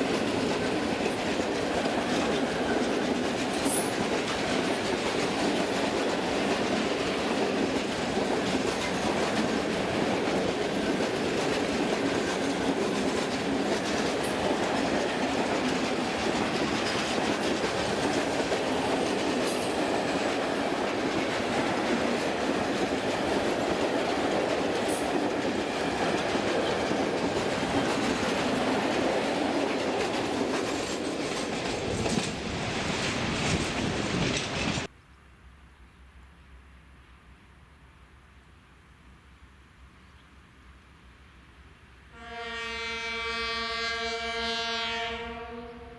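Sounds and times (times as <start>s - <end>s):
train rumbling on rails: 0.0s - 34.9s
wheels clickety-clack: 0.0s - 34.9s.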